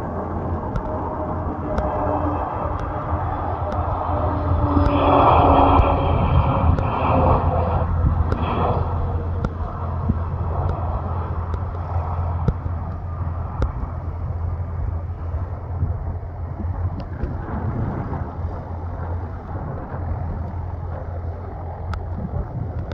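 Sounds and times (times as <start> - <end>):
jet engines rumbling: 0.0 - 22.9
wind on microphone: 0.0 - 22.9.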